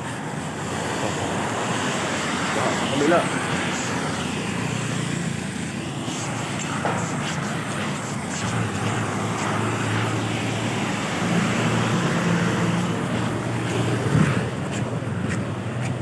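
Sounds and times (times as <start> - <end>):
vehicle engine humming: 0.0 - 16.0
wind noise on microphone: 3.4 - 16.0.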